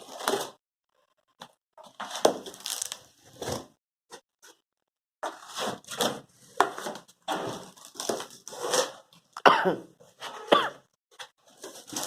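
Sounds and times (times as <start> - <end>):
cardboard tearing and rustling: 2.0 - 3.6, 6.8 - 9.0, 11.4 - 12.0.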